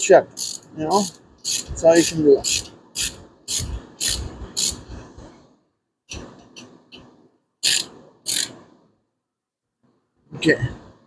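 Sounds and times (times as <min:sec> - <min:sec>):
ratchet wrench clicking: 0:00.4 - 0:04.8, 0:07.6 - 0:08.5.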